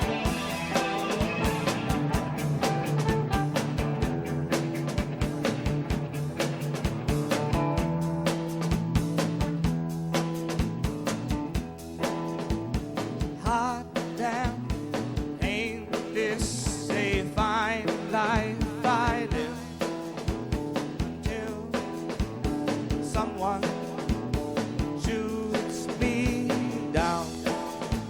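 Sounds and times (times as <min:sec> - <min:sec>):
bending lead guitar melody: 0:00.0 - 0:13.4
rock band playing: 0:00.0 - 0:28.0.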